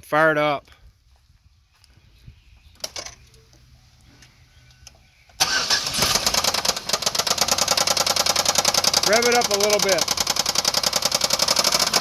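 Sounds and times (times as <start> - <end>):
car engine running with knocking: 6.5 - 12.0.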